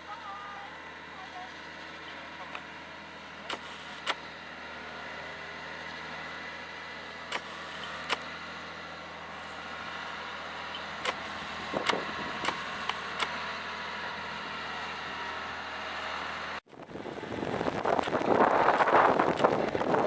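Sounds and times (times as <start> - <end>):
heavy vehicle engine running: 0.0 - 20.0
sharp clicks: 3.5 - 4.2, 7.3 - 8.3, 10.7 - 11.2, 11.8 - 13.4
rough rushing noise: 16.7 - 20.0.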